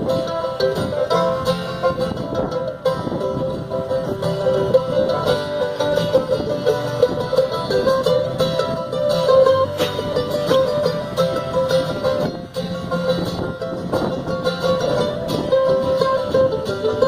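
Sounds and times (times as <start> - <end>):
band backing: 0.0 - 17.0
picked string notes: 0.0 - 17.0.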